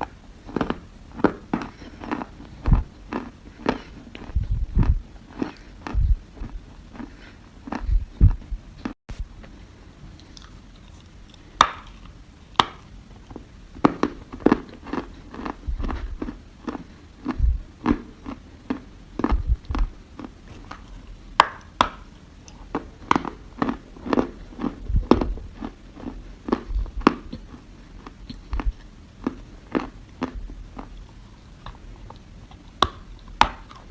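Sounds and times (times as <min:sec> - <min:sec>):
dry soil crunching when chewed: 0:00.0 - 0:09.0, 0:14.0 - 0:21.2, 0:22.5 - 0:33.9
low thumps: 0:02.6 - 0:03.0, 0:04.3 - 0:05.1, 0:05.9 - 0:06.6, 0:07.8 - 0:09.3, 0:17.4 - 0:17.7, 0:19.3 - 0:20.0, 0:24.9 - 0:25.5.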